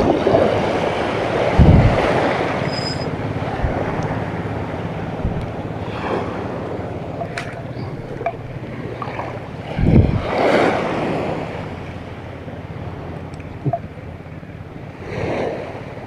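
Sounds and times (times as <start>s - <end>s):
sea waves washing onto shore: 0.0s - 16.0s
wind buffeting microphone: 0.0s - 16.0s.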